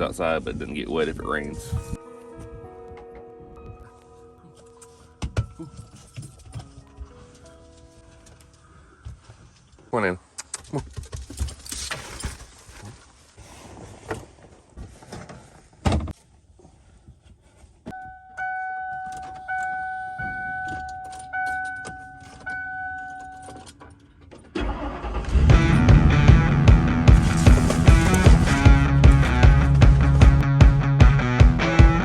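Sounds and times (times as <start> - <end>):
music: 1.8 - 8.8, 25.2 - 32.0
vehicle warning chime beeps: 18.0 - 23.7
keys jangling: 27.1 - 28.7.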